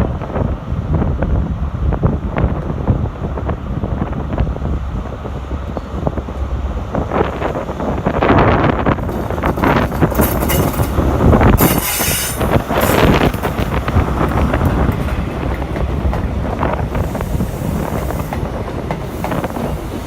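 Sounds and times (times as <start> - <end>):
train wheels clicking and rumbling: 0.0 - 20.0
high wheel squeal: 11.6 - 13.2.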